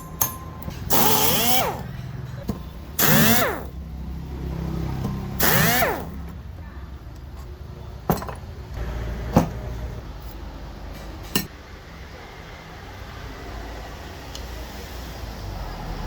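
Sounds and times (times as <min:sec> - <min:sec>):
sharp metallic clinks: 0:00.0 - 0:01.6.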